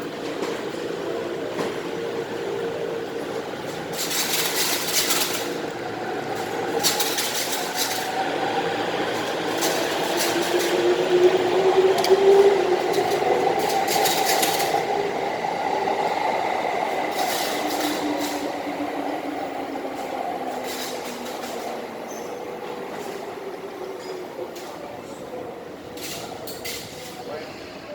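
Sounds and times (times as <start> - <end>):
traction motors whining: 4.1 - 24.4.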